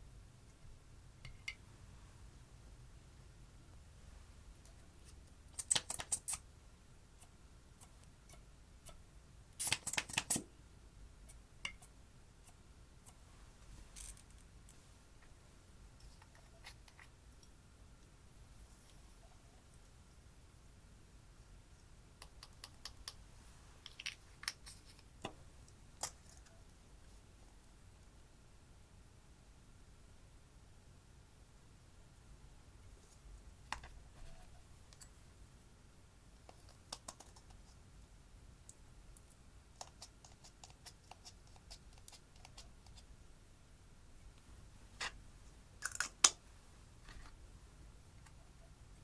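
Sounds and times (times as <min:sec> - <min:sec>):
small sharp clicks and taps: 0:22.2 - 0:23.2.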